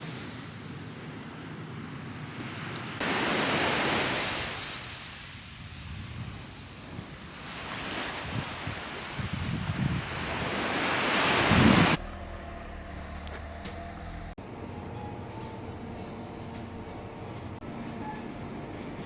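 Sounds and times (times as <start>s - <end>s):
sea waves washing ashore: 0.0s - 12.0s
wind on microphone: 5.4s - 12.0s.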